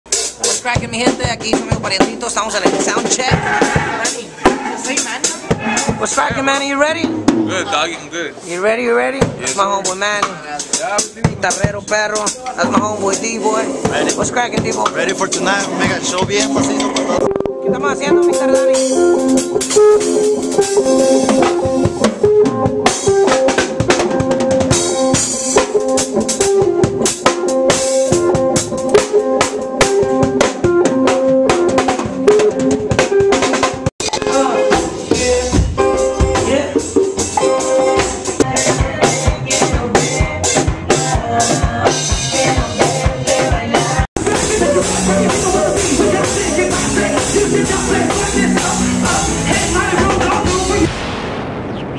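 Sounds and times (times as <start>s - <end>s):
guitar: 0.1s - 51.1s
drum rimshots: 0.1s - 51.9s
live band playing: 0.1s - 51.9s.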